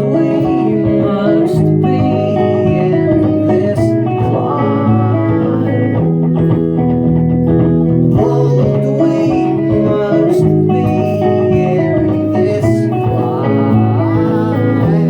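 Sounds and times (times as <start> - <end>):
electric guitar music: 0.0 - 15.0.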